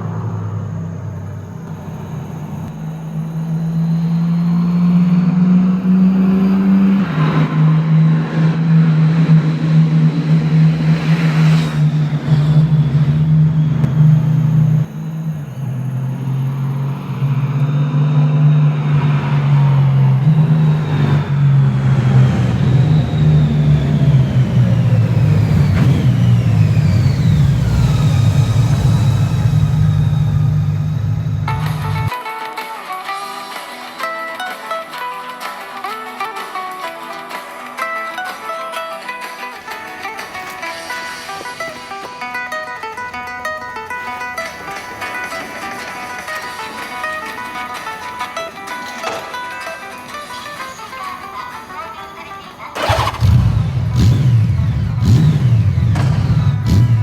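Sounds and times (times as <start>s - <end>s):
motorcycle engine running: 0.6s - 32.1s, 52.8s - 57.0s.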